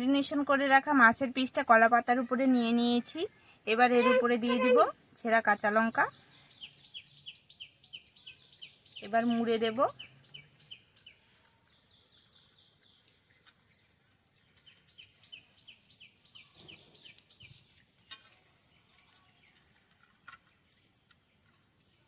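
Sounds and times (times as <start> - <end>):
faint bird chirping: 0.0 - 22.0
leaf wrapping clicks and rustles: 11.2 - 22.0.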